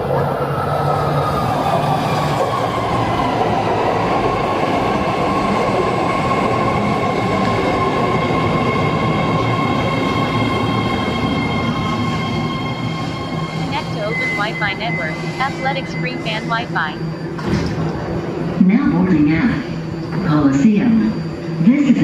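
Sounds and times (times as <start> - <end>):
higher electric whine: 9.7 - 22.0.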